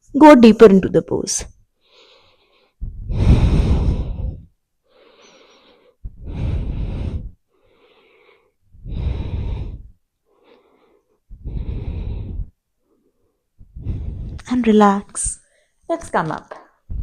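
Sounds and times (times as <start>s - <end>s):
faint in-breaths: 1.8s - 14.5s, 15.4s - 15.8s
woman breathing out heavily: 1.9s - 12.6s.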